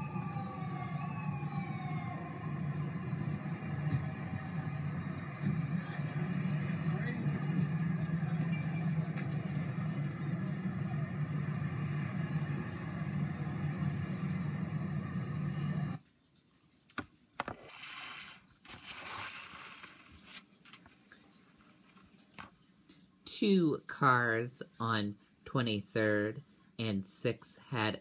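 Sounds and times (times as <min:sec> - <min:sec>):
vehicle engines humming: 0:00.0 - 0:16.0.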